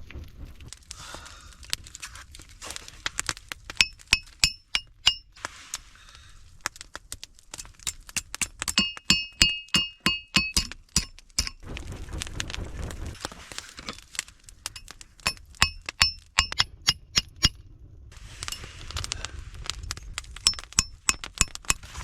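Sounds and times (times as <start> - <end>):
hammer clinking on hot steel: 3.8 - 5.3, 7.6 - 11.6, 14.7 - 17.6, 18.4 - 18.7, 20.4 - 22.0.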